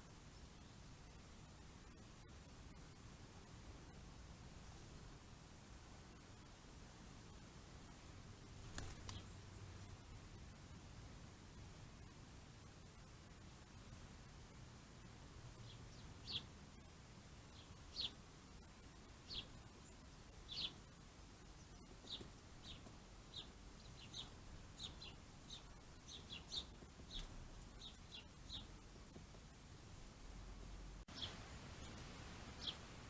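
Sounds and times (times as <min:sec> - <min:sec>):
small bird chirping: 0:08.6 - 0:10.0, 0:15.4 - 0:16.9, 0:17.5 - 0:29.3, 0:31.0 - 0:32.9.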